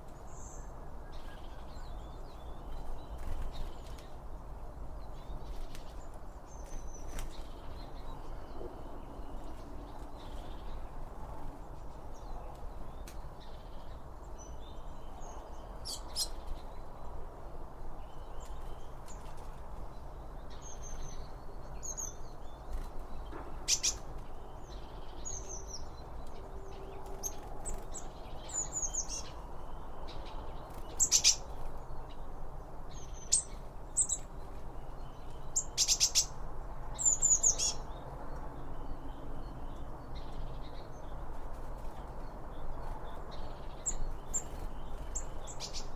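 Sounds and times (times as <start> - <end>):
birds chirping: 0.0 - 45.9
sharp bird calls: 20.6 - 32.3, 32.9 - 38.0.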